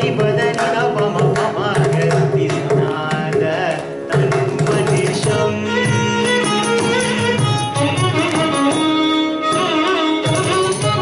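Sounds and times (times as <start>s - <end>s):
hand drum strokes: 0.0s - 11.0s
violin melody: 4.0s - 11.0s.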